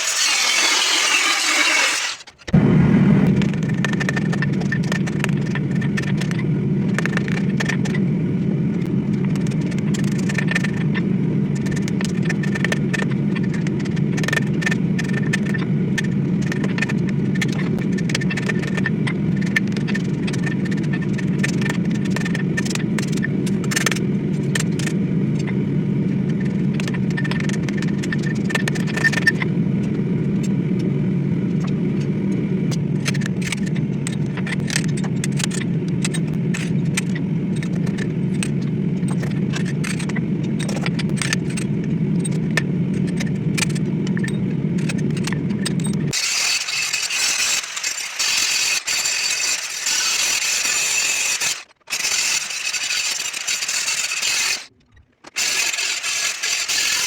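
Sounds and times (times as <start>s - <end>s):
power tool motor running: 0.0s - 2.5s, 46.1s - 54.7s, 55.3s - 57.0s
scraping clicks: 0.0s - 2.6s, 32.7s - 57.0s.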